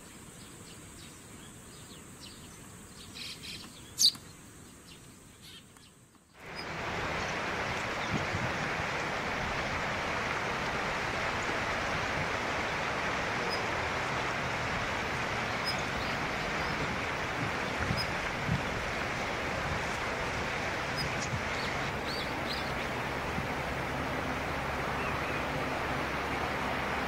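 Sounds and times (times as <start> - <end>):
rushing background noise: 6.4 - 27.0.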